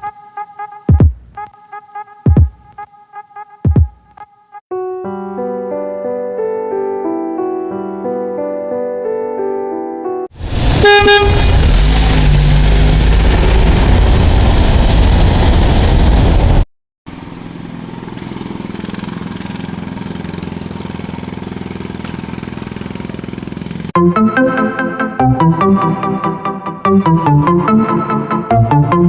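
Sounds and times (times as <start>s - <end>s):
loud engine noise: 10.4s - 24.0s
vehicle horn toot: 10.7s - 11.6s
vehicle engine running: 17.1s - 24.0s.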